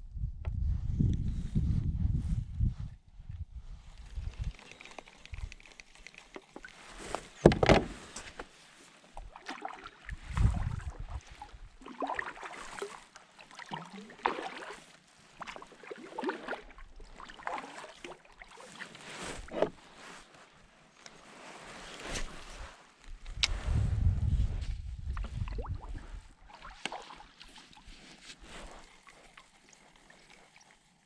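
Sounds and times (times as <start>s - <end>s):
paddle strokes splashing in water: 4.5s - 20.3s, 25.2s - 31.0s.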